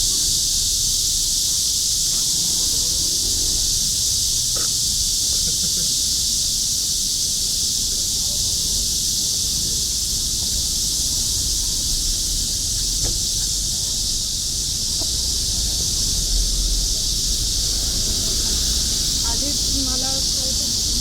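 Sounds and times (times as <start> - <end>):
cicadas singing: 0.0 - 21.0.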